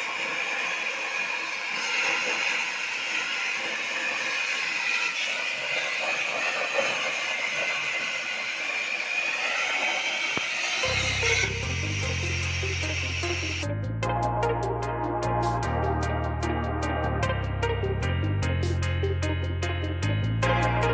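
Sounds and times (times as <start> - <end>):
plasma torch hissing: 0.0 - 13.7.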